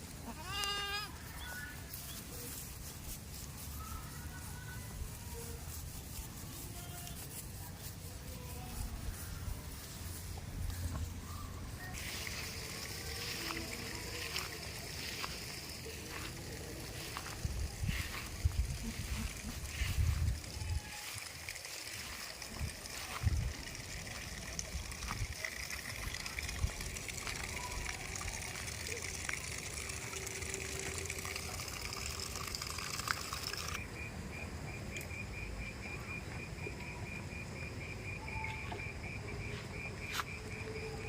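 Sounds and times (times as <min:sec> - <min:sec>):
flowing water: 0:11.9 - 0:33.8
high-pitched insect trill: 0:12.0 - 0:41.0.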